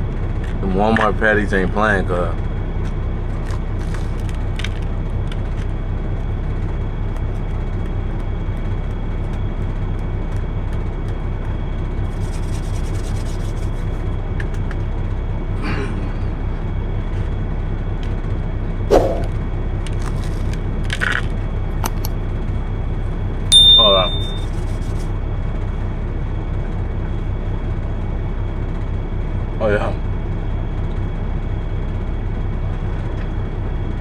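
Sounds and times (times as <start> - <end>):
diesel engine idling: 0.0 - 34.0
short loud thump: 18.9 - 19.3.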